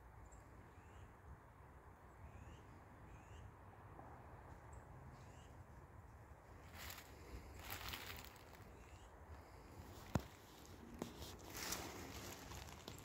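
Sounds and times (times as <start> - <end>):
faint bird chirps: 0.2 - 1.2, 2.1 - 3.5, 7.6 - 9.2.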